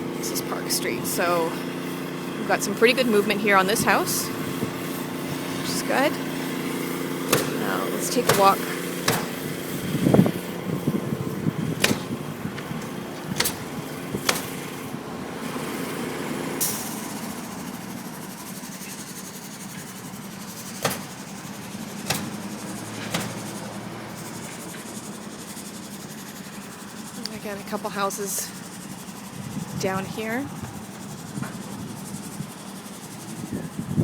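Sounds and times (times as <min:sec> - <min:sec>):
car engine idling: 0:00.0 - 0:34.0
sharp clicks and knocks: 0:07.3 - 0:09.5, 0:11.8 - 0:14.9, 0:20.6 - 0:24.9.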